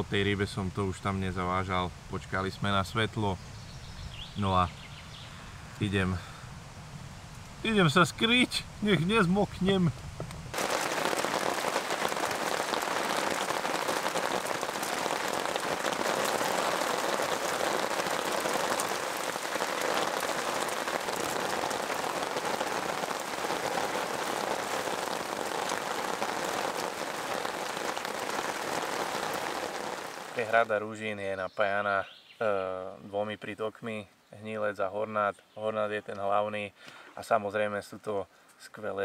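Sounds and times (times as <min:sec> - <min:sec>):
heavy rain on water: 0:10.5 - 0:30.8.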